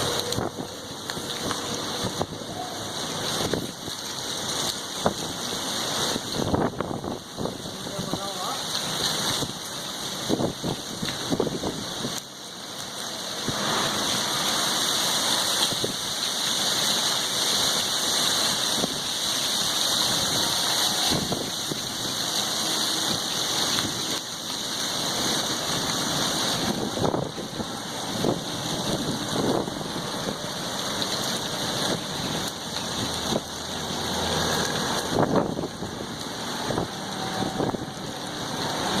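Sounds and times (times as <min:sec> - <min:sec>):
storm wind blowing hard: 0:05.0 - 0:08.2, 0:10.2 - 0:12.2, 0:18.4 - 0:24.2, 0:24.9 - 0:33.5, 0:34.6 - 0:39.0.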